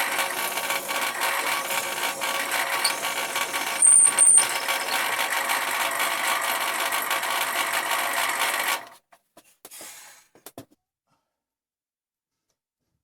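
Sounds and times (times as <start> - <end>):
electric drill boring through wood: 0.0 - 8.9
short high squeals: 1.1 - 5.2.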